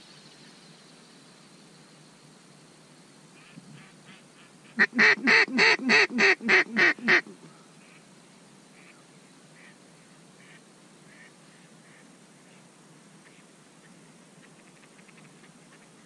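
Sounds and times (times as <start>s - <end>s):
faint quacks: 3.4s - 8.0s, 8.8s - 9.0s, 10.4s - 16.0s
duck call quacking: 4.8s - 8.0s.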